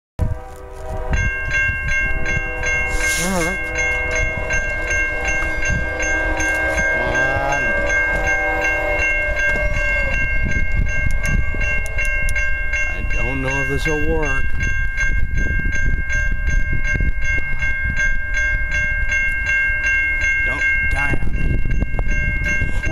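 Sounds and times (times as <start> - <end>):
locomotive horn chord: 0.2 - 13.1
crossing bell ringing: 0.2 - 22.9
train rumble: 0.2 - 22.9.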